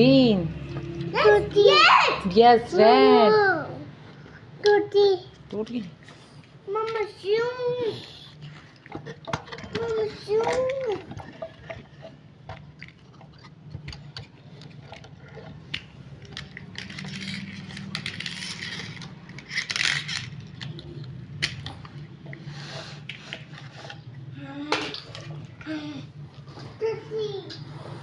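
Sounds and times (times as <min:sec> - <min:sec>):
scraping and clicking handling noises: 0:08.4 - 0:25.6.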